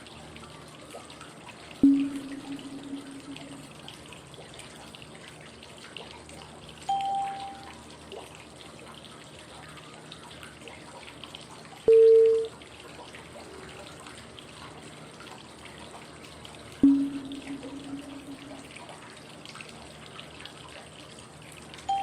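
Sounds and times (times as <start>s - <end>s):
flowing water noise: 0.0s - 22.0s
cue tones: 1.8s - 3.8s, 16.8s - 18.7s.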